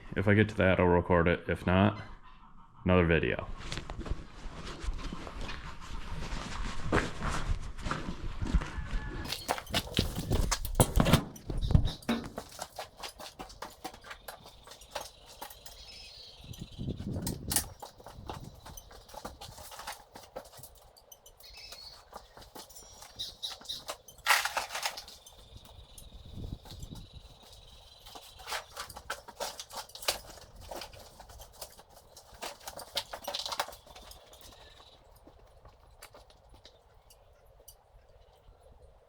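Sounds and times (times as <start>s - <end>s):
footsteps: 3.5s - 36.9s
heavy thumps: 9.3s - 15.6s
tools clattering: 9.3s - 37.2s.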